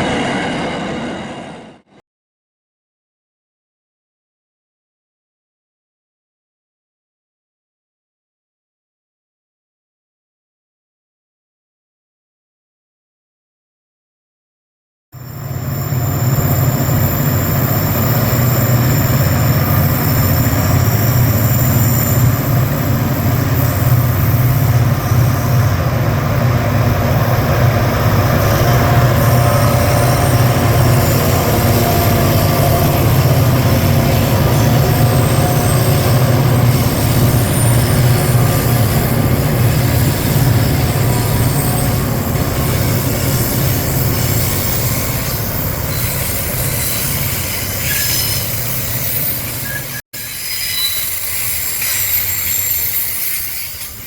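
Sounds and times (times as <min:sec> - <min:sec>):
train rumbling on rails: 0:00.0 - 0:02.0, 0:15.2 - 0:54.0
high wheel squeal: 0:15.2 - 0:25.8, 0:27.9 - 0:54.0.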